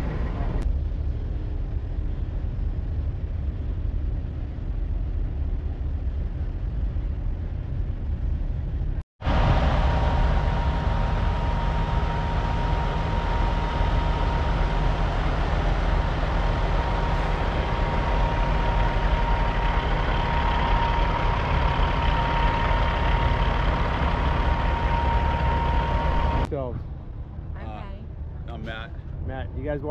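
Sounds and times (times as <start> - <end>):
diesel truck engine idling: 9.2 - 26.5
high whine: 9.2 - 26.8.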